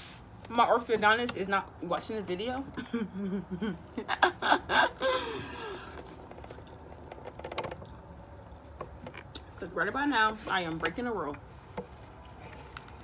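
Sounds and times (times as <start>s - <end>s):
quiet chewing: 5.4s - 9.6s.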